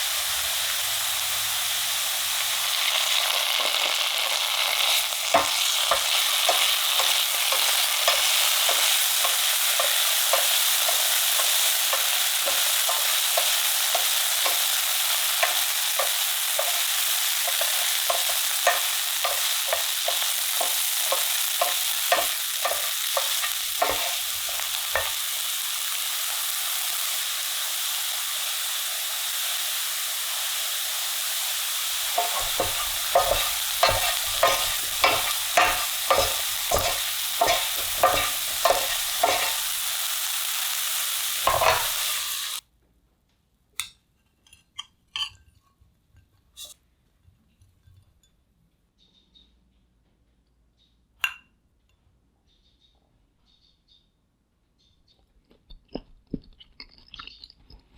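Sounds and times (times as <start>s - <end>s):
potatoes sizzling in a pan: 0.0s - 42.6s
spatula scraping a pan: 2.5s - 25.9s, 31.9s - 40.3s, 40.9s - 42.6s.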